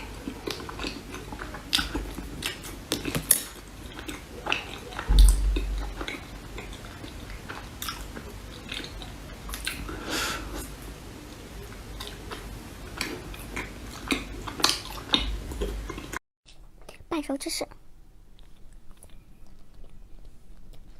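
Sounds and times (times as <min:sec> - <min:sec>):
biting and chewing: 0:00.0 - 0:09.9, 0:12.0 - 0:16.6, 0:18.2 - 0:20.9
heavy low thump: 0:05.1 - 0:06.3.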